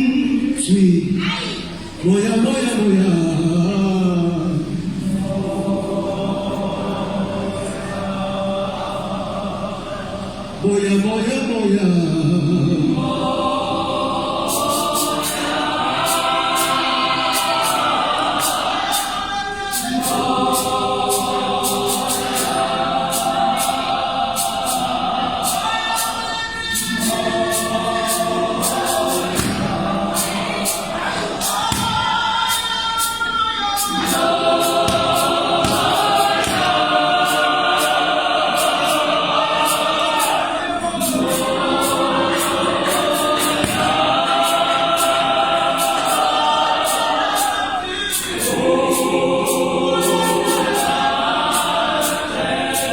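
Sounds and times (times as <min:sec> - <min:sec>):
choir singing in harmony: 0:00.0 - 0:52.9
high ticking beat: 0:13.1 - 0:52.9.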